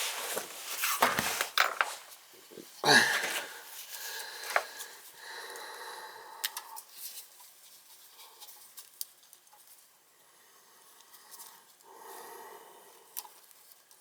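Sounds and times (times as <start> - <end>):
rustling of wire and tools: 0.0 - 5.1.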